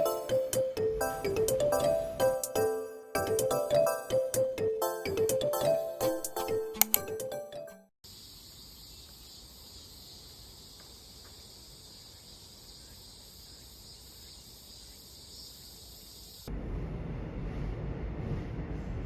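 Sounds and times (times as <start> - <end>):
insects chirping: 8.0 - 16.5
loud low rumble: 16.5 - 19.0.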